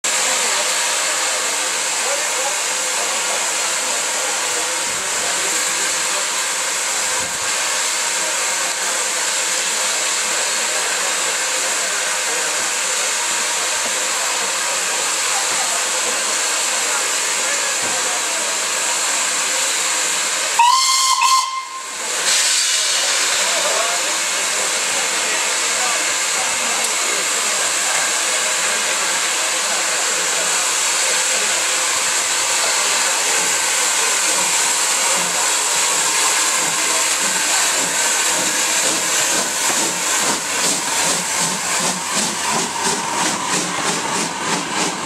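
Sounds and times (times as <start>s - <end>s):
steam hissing from locomotive: 0.0s - 45.0s
steam whistle blast: 20.6s - 23.0s.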